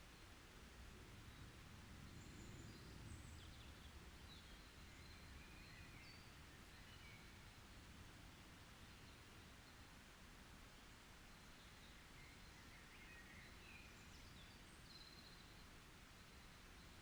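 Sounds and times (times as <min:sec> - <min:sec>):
low steady background rumble: 0:00.0 - 0:12.6.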